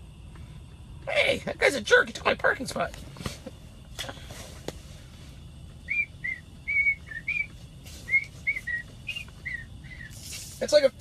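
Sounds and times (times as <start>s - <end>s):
person whistling a tune: 5.9s - 10.1s.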